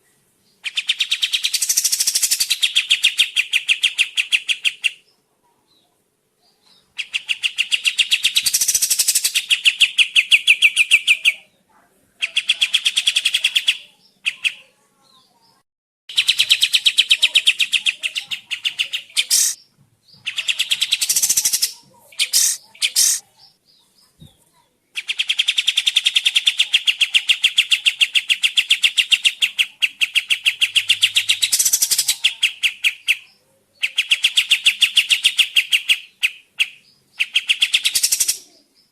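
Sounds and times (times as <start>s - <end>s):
songbird chattering song: 0.0s - 38.9s
bird single calls: 17.6s - 19.6s, 20.2s - 23.2s.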